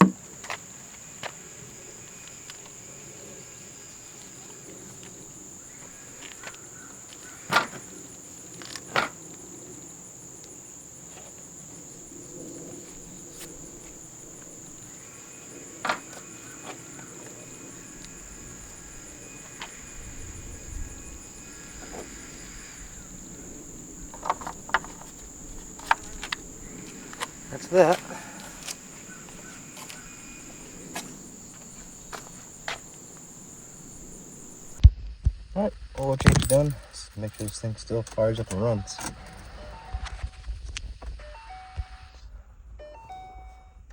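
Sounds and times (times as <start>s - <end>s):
sharp knocks: 0.0s - 0.2s, 24.0s - 34.8s
insects chirring: 0.0s - 42.0s.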